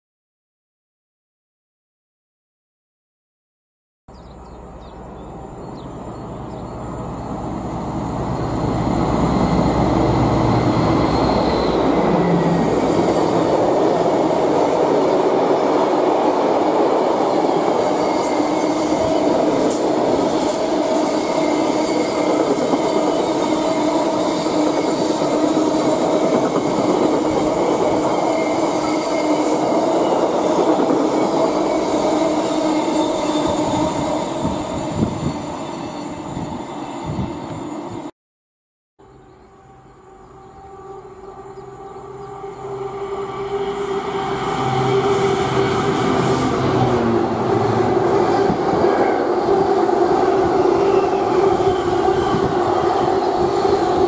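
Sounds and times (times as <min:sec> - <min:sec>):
faint whining squeal: 0:08.2 - 0:13.5.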